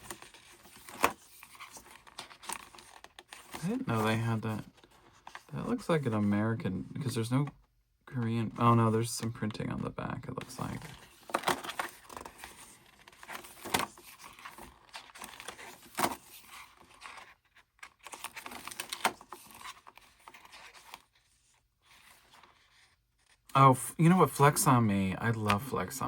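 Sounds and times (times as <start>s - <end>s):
paper rustling and crinkling: 0.0s - 6.3s, 10.4s - 23.5s
pages turning: 0.0s - 6.4s, 10.4s - 23.5s.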